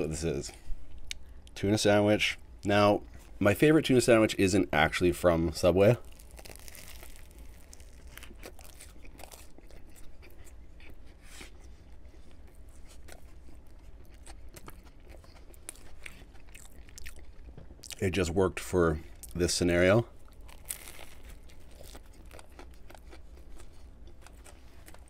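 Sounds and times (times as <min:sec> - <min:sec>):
person biting and chewing sandwich: 0:06.0 - 0:18.0, 0:20.2 - 0:25.0.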